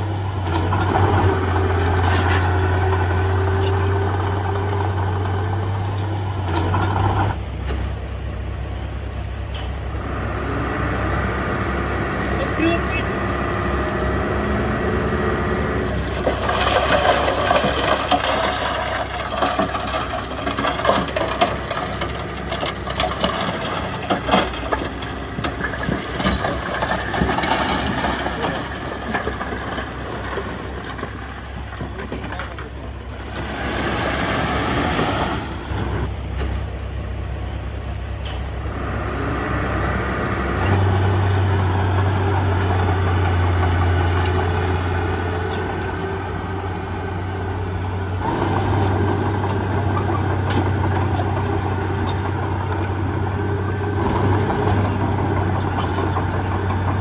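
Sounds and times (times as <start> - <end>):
heavy diesel machinery running: 0.0 - 57.0
machinery knocks and clatter: 15.9 - 33.0, 47.8 - 57.0.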